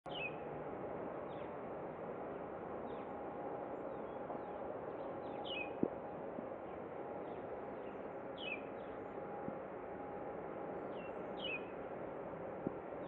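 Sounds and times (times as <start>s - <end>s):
outdoor background noise: 0.1s - 13.0s.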